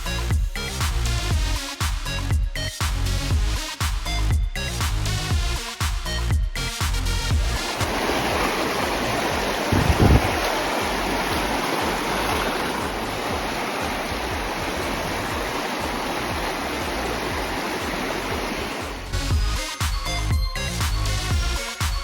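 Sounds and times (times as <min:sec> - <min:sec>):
river water rushing: 0:07.6 - 0:19.1.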